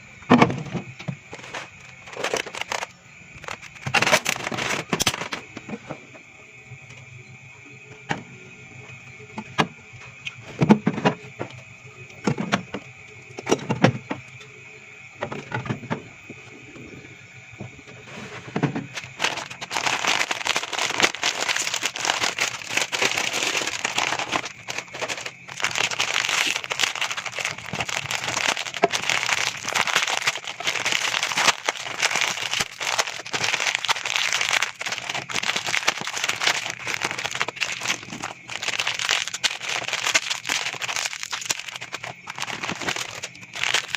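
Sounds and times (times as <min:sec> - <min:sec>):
plastic packaging crinkling: 0:01.3 - 0:05.4, 0:18.9 - 0:43.9.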